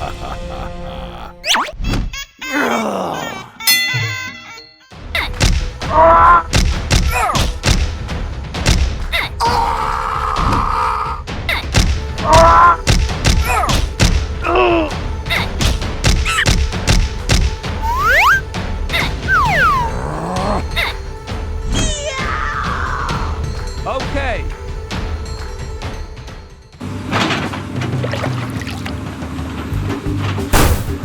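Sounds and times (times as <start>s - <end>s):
cartoon sound effects: 1.4s - 2.6s, 17.8s - 18.4s, 19.2s - 20.1s
music with thumping beat: 5.2s - 9.2s, 11.5s - 22.2s.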